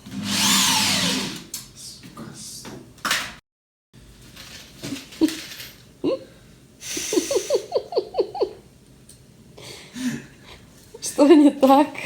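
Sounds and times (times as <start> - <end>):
person laughing: 6.9 - 8.6
soft chuckles: 7.0 - 8.6.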